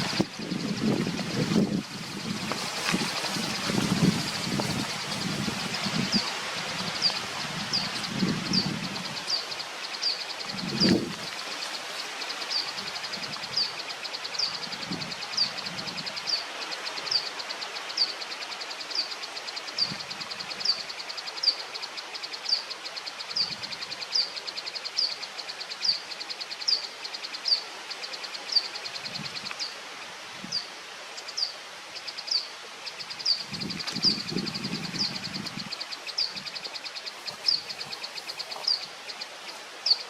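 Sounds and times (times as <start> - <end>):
bird chirping: 30.5 - 40.0.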